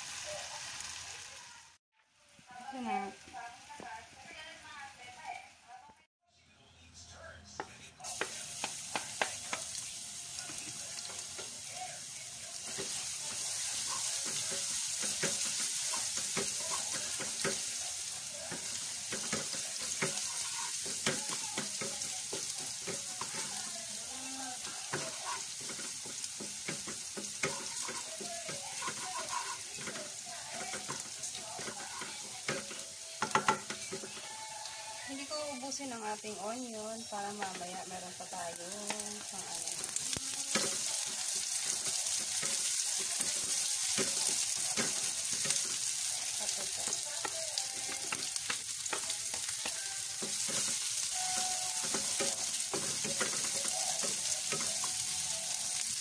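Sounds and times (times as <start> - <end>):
garlic sizzling in hot oil: 0.0 - 5.8, 8.0 - 56.0
wooden spatula scraping a pan: 18.4 - 35.4.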